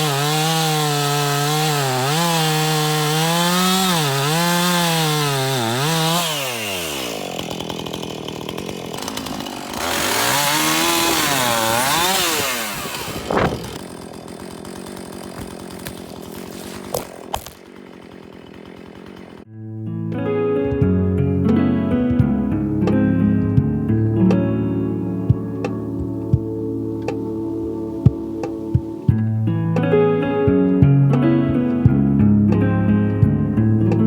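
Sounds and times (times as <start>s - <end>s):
chainsaw running: 0.0s - 19.5s
guitar music: 19.5s - 34.0s.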